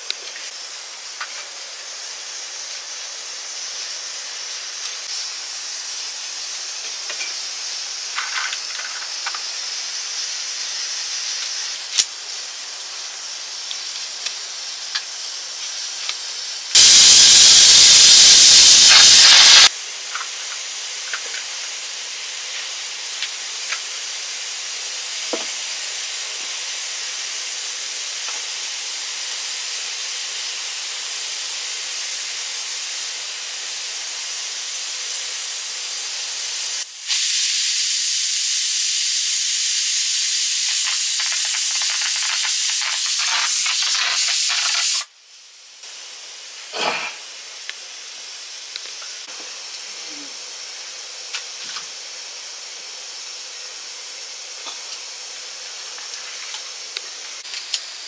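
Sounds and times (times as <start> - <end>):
food sizzling in hot oil: 0.5 - 45.1.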